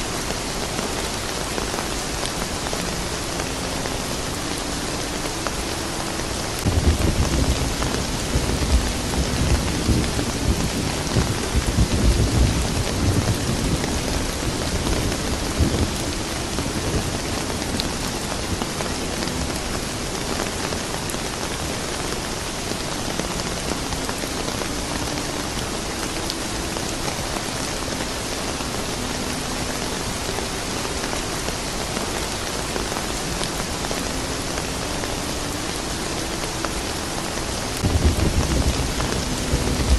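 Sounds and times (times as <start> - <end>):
steady rain: 0.0 - 39.9
thunder rumbling: 6.6 - 20.1, 37.8 - 39.9.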